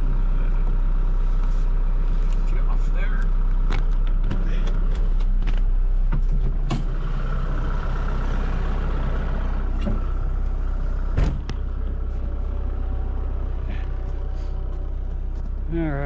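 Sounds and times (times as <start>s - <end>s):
tractor diesel engine running: 0.0s - 16.0s
sharp clunks: 11.1s - 11.7s.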